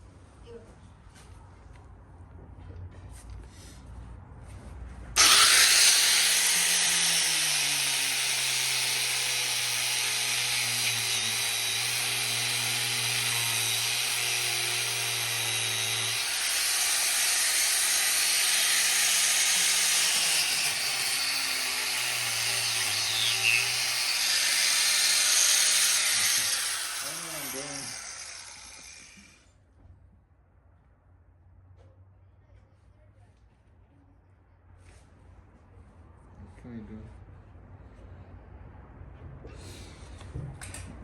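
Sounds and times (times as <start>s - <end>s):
angle grinder cutting metal: 5.2s - 29.4s.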